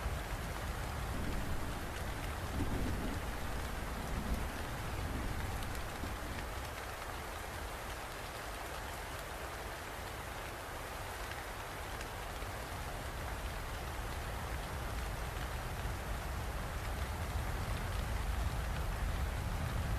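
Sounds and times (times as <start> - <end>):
steady rain falling: 0.0 - 19.9
low steady rumble: 1.0 - 6.6
raindrops ticking: 1.1 - 8.2.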